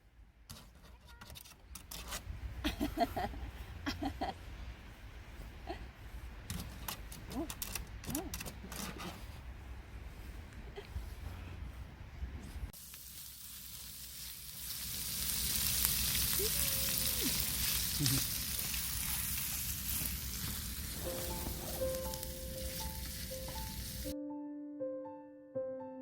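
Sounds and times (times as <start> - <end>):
food sizzling in a pan: 12.8 - 24.1
piano music: 20.9 - 26.0.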